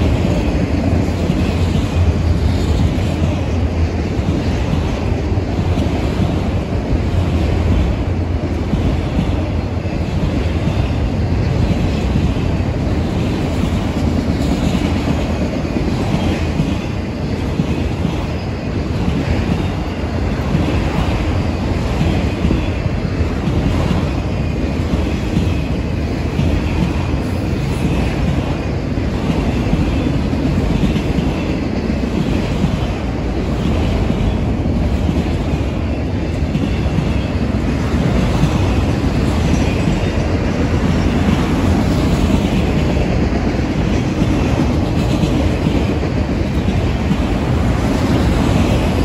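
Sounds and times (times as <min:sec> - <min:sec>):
freight train wheels rumbling: 0:00.0 - 0:49.0.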